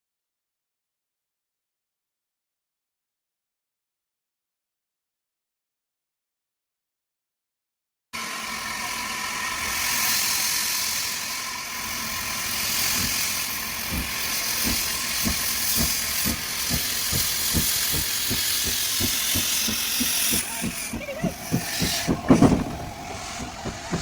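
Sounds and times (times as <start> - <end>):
steam hissing: 8.2 - 24.0
steam locomotive chuffing beats: 8.6 - 24.0.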